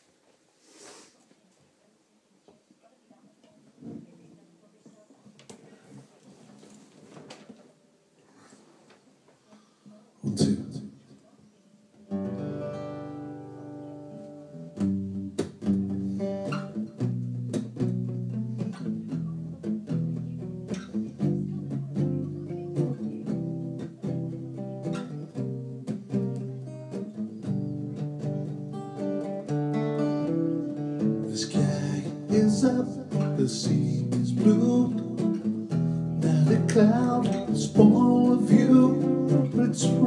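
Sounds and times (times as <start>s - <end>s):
acoustic guitar strumming: 12.1s - 40.0s.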